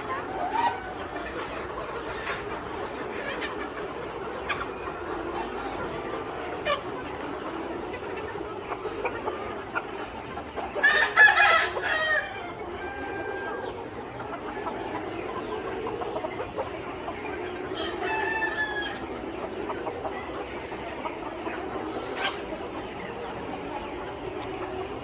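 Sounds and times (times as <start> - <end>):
chicken flock clucking: 0.0 - 25.0
rooster crowing: 10.8 - 13.7, 17.8 - 19.0.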